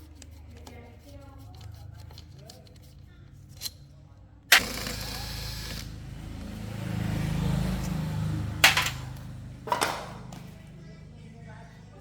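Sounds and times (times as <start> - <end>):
motorcycle engine revving: 4.5 - 10.8.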